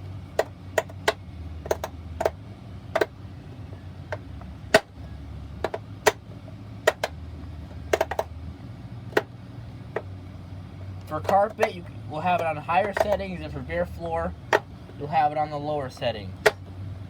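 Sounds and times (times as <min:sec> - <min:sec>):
plastic selector clicks: 0:00.4 - 0:02.4, 0:06.9 - 0:07.2, 0:07.9 - 0:08.3.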